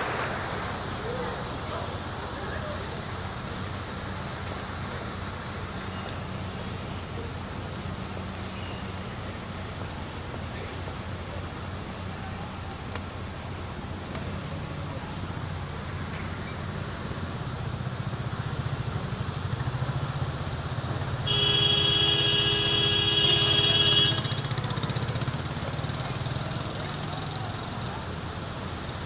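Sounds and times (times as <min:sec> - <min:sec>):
vehicle engine running: 0:00.0 - 0:29.0
horn blast: 0:21.2 - 0:24.7.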